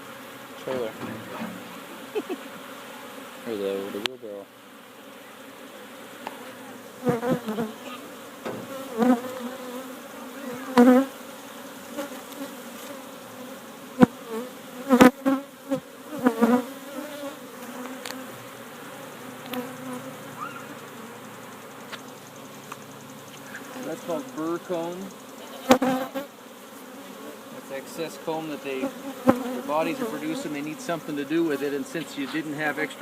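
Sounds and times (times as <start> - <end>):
bees humming: 0.0 - 33.0
louder bee buzzes: 0.0 - 33.0.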